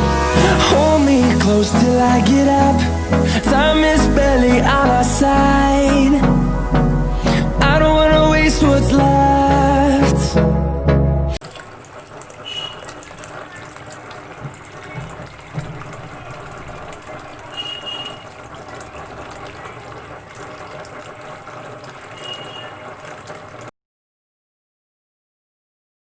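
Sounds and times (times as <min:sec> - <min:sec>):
water splashing in small waterfall: 0:11.4 - 0:23.7.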